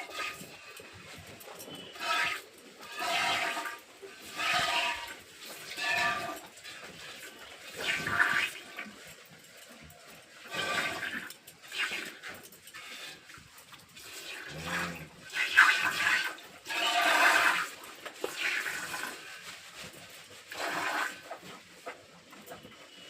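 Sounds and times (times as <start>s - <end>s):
milk squirting into a pail: 14.0s - 19.3s, 20.5s - 21.4s.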